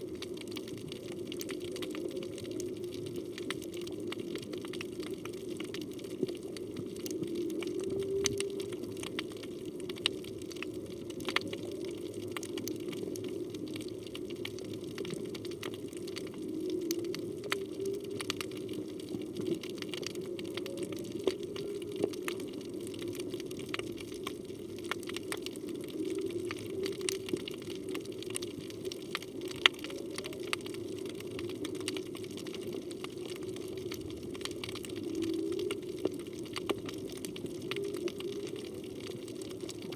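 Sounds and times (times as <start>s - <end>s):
low underwater drone: 0.0s - 39.9s
whale song moans: 6.9s - 9.3s, 16.2s - 23.4s, 24.8s - 28.3s, 34.7s - 39.6s.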